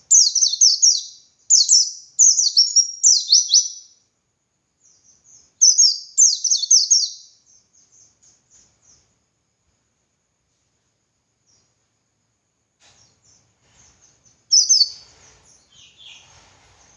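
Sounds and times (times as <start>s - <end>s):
bird singing high whistled notes: 0.0s - 4.0s, 4.8s - 8.1s, 14.5s - 16.3s.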